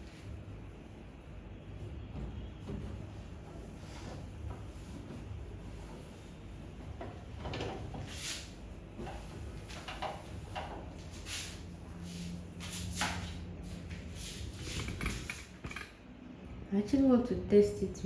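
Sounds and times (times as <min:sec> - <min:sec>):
household items knocking and scraping: 0:14.5 - 0:15.9.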